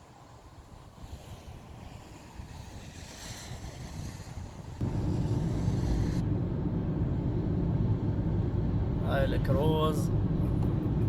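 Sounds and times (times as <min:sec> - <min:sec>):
wind on microphone: 0:00.6 - 0:06.3
low engine rumble: 0:04.8 - 0:11.0.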